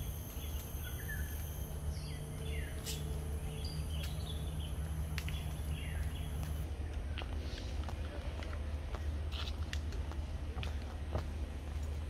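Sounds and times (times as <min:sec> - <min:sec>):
birds chirping: 0:00.0 - 0:07.1
steady low rumble: 0:00.0 - 0:12.0.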